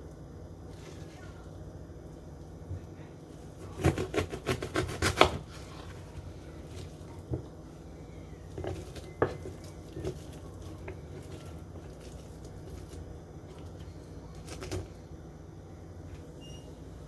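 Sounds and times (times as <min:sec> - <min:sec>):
knife chopping on cutting board: 0:03.6 - 0:05.9.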